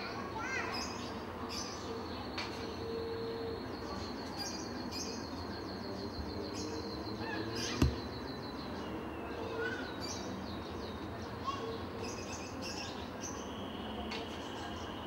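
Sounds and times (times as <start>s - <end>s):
birds chirping in trills: 0.6s - 13.9s
sharp knock: 7.8s - 8.1s.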